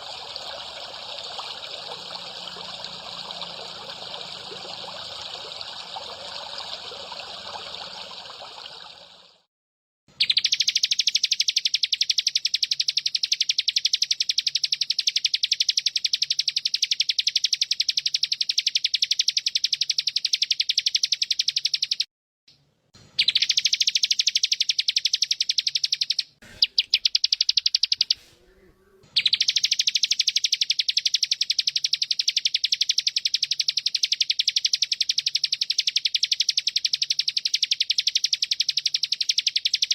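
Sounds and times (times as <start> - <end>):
water trickling: 0.0 - 9.5
high-pitched bird trill: 23.2 - 28.2.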